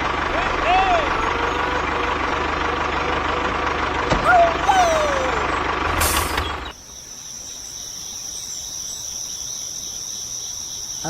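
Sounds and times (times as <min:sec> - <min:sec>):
loud sound cutting off: 0:00.0 - 0:06.7
insects chirring: 0:06.6 - 0:11.0.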